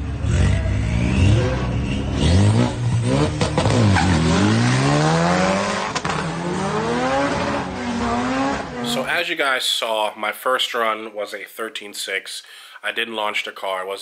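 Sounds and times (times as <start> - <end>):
car engine at full throttle: 0.0 - 9.0.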